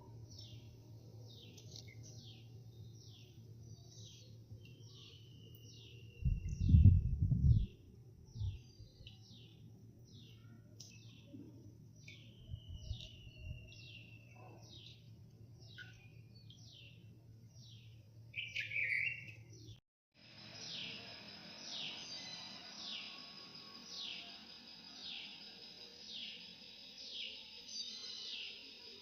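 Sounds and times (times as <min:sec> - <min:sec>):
small birds chirping: 0:00.3 - 0:07.7, 0:08.3 - 0:19.8, 0:23.8 - 0:29.0.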